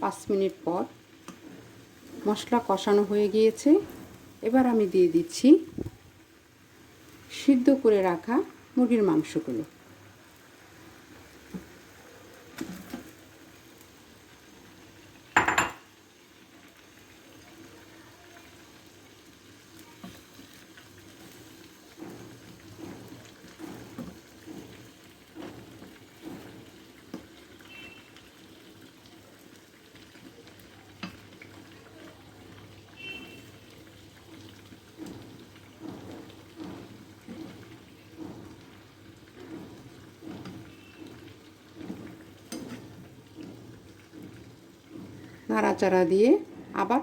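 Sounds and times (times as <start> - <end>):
metal spoon clattering on pan: 15.4 - 15.9, 42.5 - 42.9.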